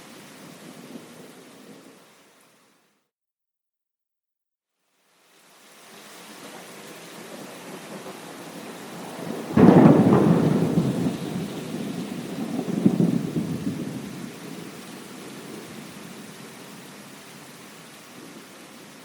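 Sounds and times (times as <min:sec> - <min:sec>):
steady rain hissing: 0:00.0 - 0:03.1, 0:04.7 - 0:19.0
rolling thunder: 0:07.7 - 0:16.3
sharp thunderclap: 0:07.9 - 0:14.7.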